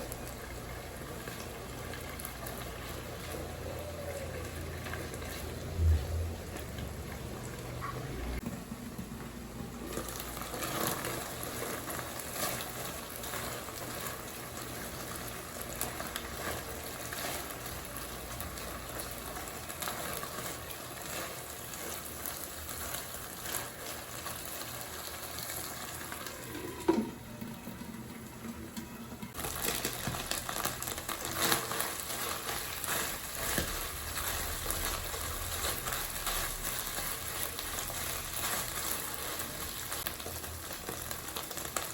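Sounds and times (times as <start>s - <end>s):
food sizzling in a pan: 9.6s - 28.4s, 29.2s - 41.9s.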